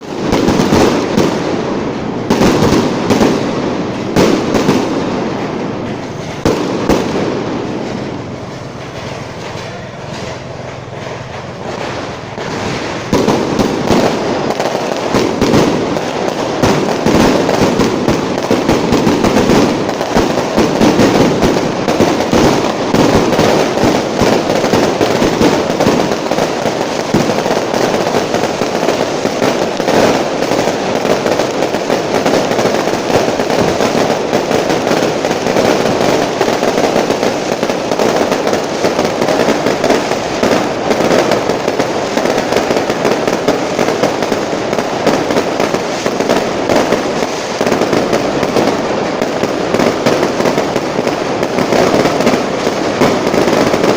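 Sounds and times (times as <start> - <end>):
fireworks crackling bangs: 0.0 - 53.9.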